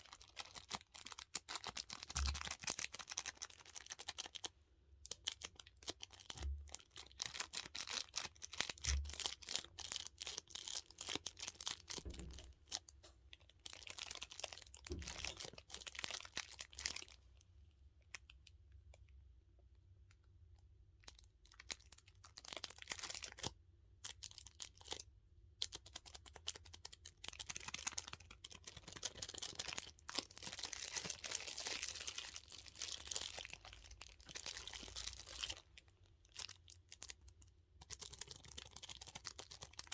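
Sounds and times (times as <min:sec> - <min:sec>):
plastic crinkling and clicking: 0:00.1 - 0:04.5, 0:05.1 - 0:17.2, 0:25.7 - 0:39.9.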